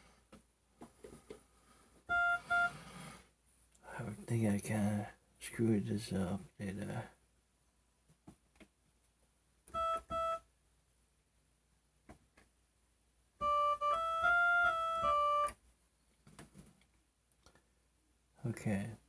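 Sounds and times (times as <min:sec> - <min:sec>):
electronic keyboard organ notes: 0:02.1 - 0:02.8, 0:09.7 - 0:10.4, 0:13.4 - 0:15.6.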